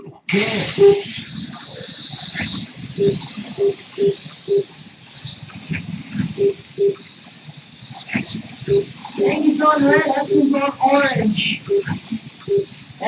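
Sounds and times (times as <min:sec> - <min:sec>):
short beeps: 0:02.1 - 0:04.7, 0:11.6 - 0:12.7.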